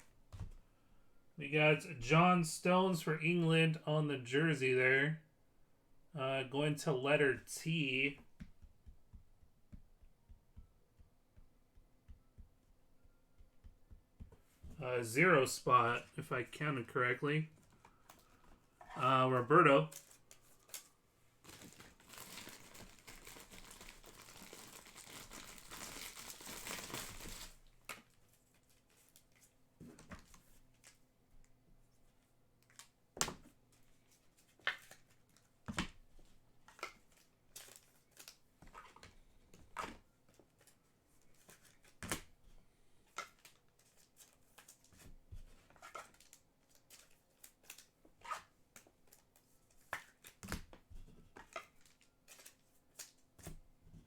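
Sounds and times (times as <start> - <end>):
wrappers crinkling and tearing: 19.8 - 29.6, 37.2 - 38.4.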